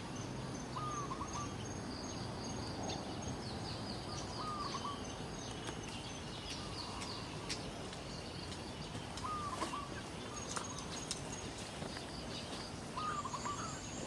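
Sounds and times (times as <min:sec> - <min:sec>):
birds chirping: 0:00.0 - 0:14.0
steady background hiss: 0:00.0 - 0:14.0
short low bird calls: 0:09.2 - 0:10.9, 0:13.0 - 0:14.0.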